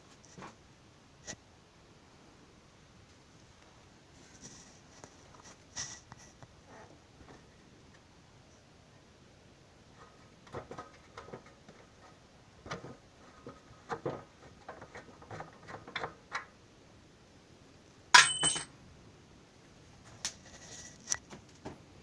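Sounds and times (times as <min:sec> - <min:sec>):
loud ringing metal clank: 0:18.2 - 0:18.7
wrench clinking on bolt: 0:18.2 - 0:18.7.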